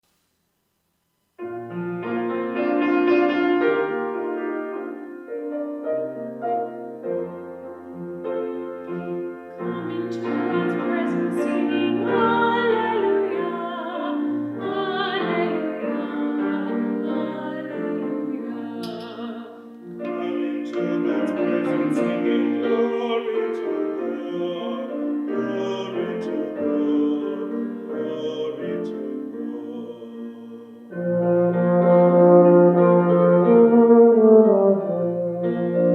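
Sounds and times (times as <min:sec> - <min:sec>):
piano accompaniment: 0:01.4 - 0:35.9
person singing long wavering notes: 0:09.6 - 0:31.4.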